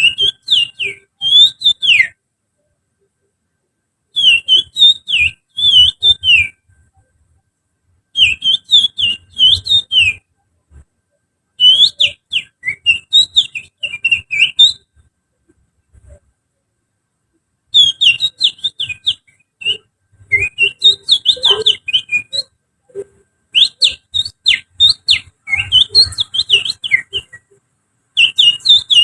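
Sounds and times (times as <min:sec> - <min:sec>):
finger whistling birdsong: 0:00.0 - 0:02.2, 0:04.2 - 0:07.1, 0:08.1 - 0:10.3, 0:11.6 - 0:15.0, 0:17.7 - 0:27.6, 0:28.2 - 0:29.0.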